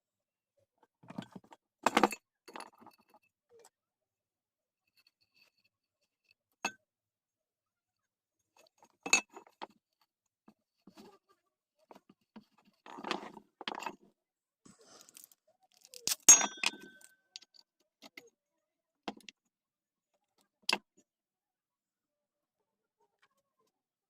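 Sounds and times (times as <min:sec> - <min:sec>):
ringing metallic clink: 0:16.3 - 0:17.2.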